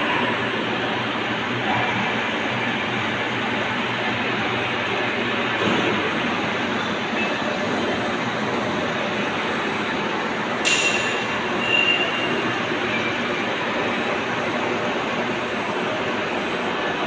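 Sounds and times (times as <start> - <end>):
sharp metallic clink: 10.6 - 12.0.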